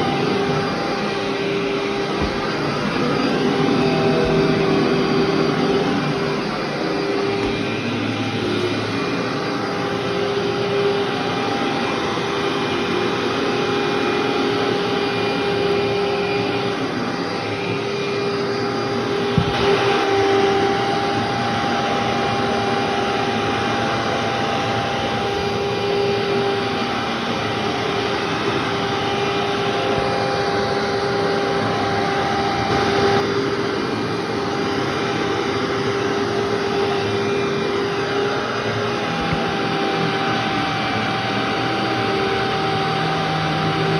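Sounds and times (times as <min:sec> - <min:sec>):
vacuum cleaner running: 0:00.0 - 0:43.9.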